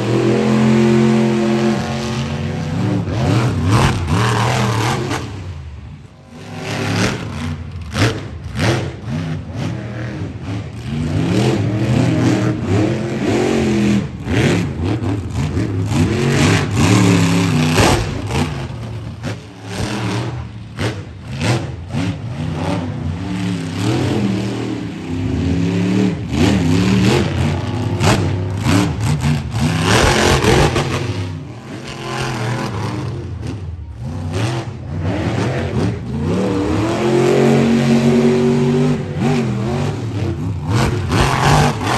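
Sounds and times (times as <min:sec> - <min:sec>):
truck engine revving hard: 0:00.0 - 0:41.9.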